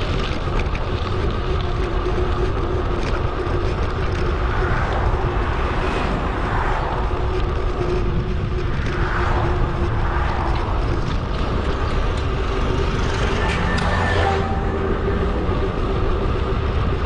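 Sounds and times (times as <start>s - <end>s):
wind rumble on microphone: 0.0s - 17.0s
thin constant tone: 1.1s - 17.0s.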